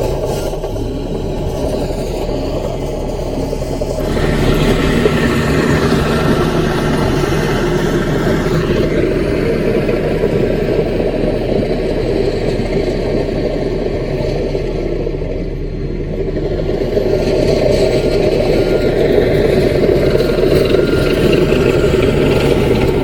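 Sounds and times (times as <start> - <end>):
bulldozer diesel engine running: 0.0 - 23.0.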